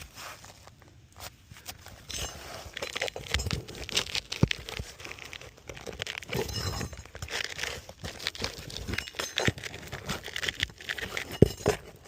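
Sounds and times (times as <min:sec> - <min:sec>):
roof shingle scraping and crackling: 0:01.6 - 0:12.0
shingle tearing: 0:02.0 - 0:12.0.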